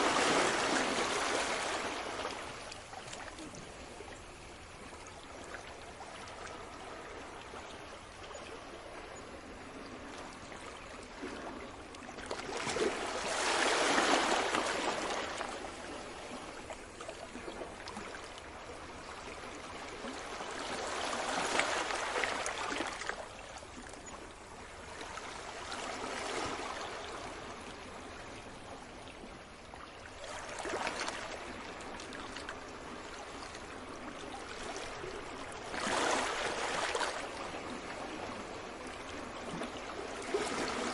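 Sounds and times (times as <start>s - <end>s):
sea waves washing ashore: 0.0s - 4.8s, 9.7s - 23.8s, 30.1s - 40.9s.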